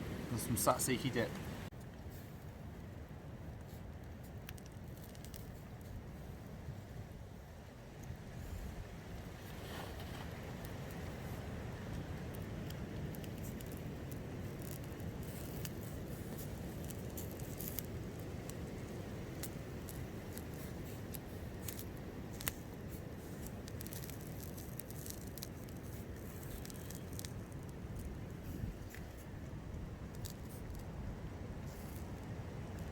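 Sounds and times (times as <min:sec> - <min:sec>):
wind rumbling: 0:00.0 - 0:01.8
campfire crackling: 0:00.0 - 0:32.9.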